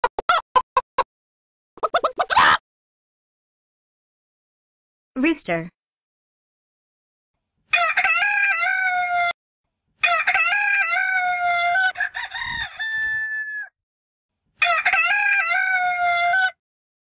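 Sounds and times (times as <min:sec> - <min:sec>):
rooster crowing: 0:07.7 - 0:09.3, 0:10.5 - 0:13.8, 0:15.1 - 0:16.6.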